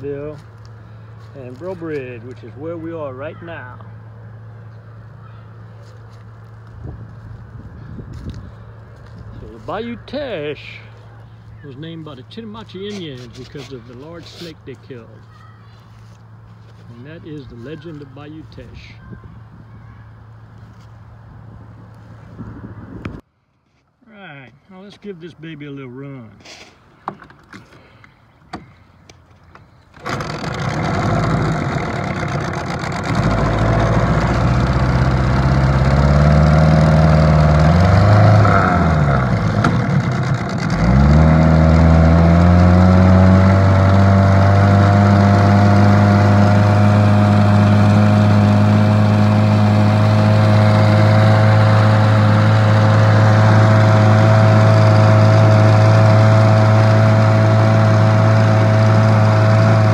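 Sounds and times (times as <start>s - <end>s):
outboard motor starting and running: 29.5s - 59.9s.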